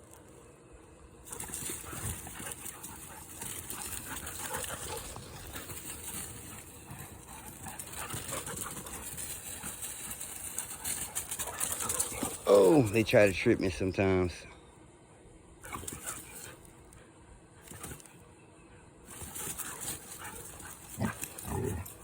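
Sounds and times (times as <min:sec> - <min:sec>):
dogs panting and scuffling: 0:01.2 - 0:13.1, 0:15.6 - 0:18.3, 0:19.0 - 0:22.0.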